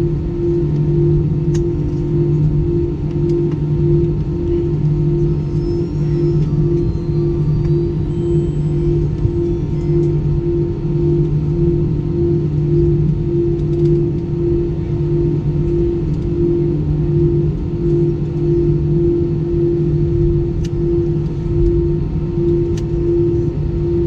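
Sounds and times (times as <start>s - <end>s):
airplane cabin engine hum: 0.0s - 24.0s.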